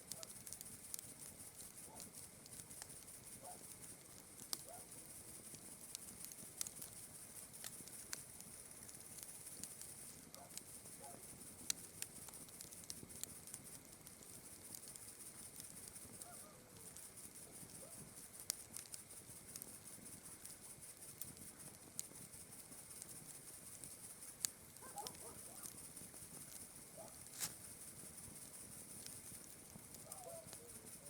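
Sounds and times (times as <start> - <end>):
burning wood popping: 0.0 - 31.0
campfire crackling: 0.0 - 31.0
crickets chirring: 19.8 - 31.0.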